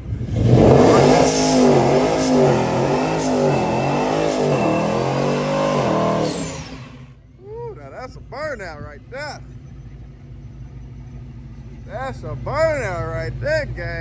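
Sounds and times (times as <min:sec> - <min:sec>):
car engine revving hard: 0:00.0 - 0:07.2
tyres spinning in burnout: 0:00.0 - 0:07.2.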